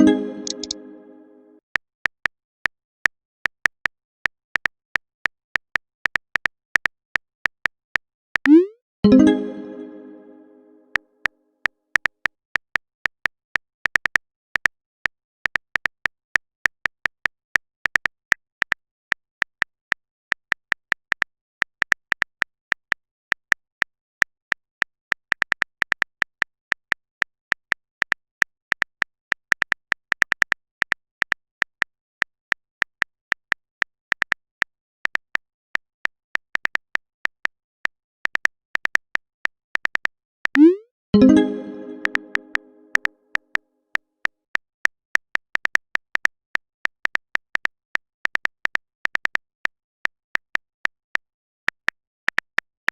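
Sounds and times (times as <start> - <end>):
keyboard typing clicks: 0.0 - 1.1, 40.6 - 43.1.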